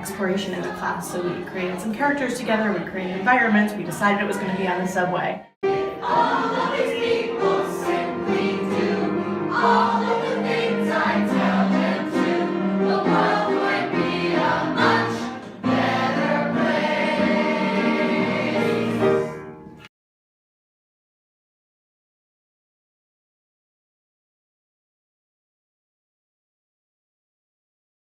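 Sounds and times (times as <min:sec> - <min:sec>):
group singing in harmony: 0:00.0 - 0:19.5.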